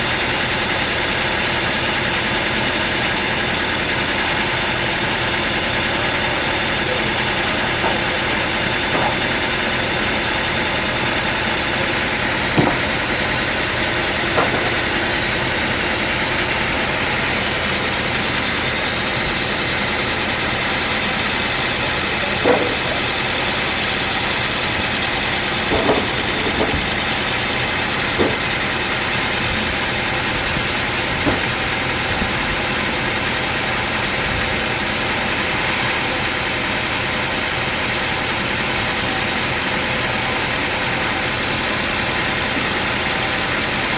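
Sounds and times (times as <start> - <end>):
sawmill machinery running: 0.0 - 43.9
short sharp knocks: 12.5 - 13.0, 31.2 - 31.6.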